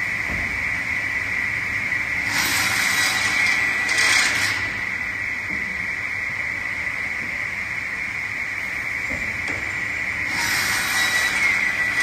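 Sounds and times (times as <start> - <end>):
saw running with high whine: 0.8 - 9.0, 9.7 - 12.0
saw hissing through wood: 10.3 - 12.0.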